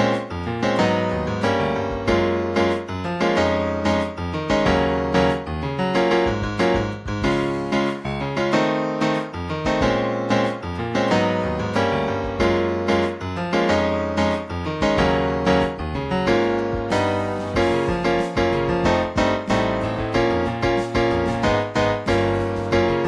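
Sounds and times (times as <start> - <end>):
keyboard chords over bass notes: 0.0 - 23.0.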